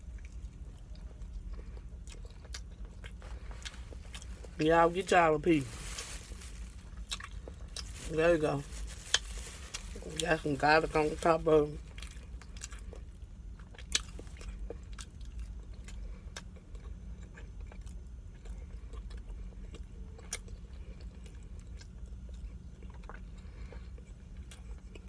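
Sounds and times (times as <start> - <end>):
chewing and biting chicken: 0.0 - 4.6, 6.8 - 7.9, 11.8 - 25.0
steady low hum: 0.0 - 25.0.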